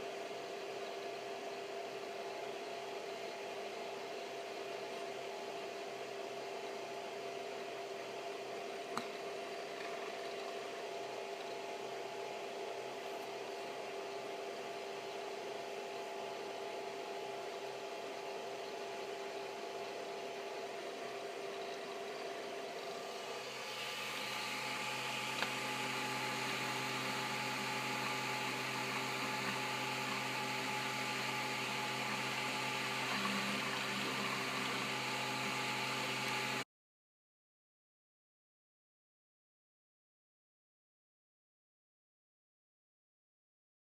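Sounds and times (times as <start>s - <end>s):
printer fan whir: 0.0s - 36.6s
printer motor tones: 20.9s - 36.6s.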